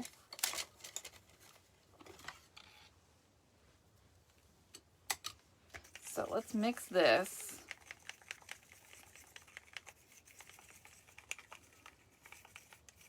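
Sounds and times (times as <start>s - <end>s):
paint bottles clicking: 7.5s - 13.0s.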